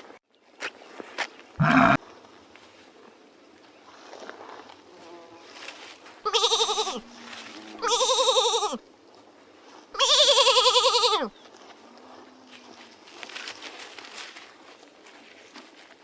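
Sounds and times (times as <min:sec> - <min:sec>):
farm animal bleating: 0:01.6 - 0:02.0, 0:06.2 - 0:08.8, 0:09.9 - 0:11.4.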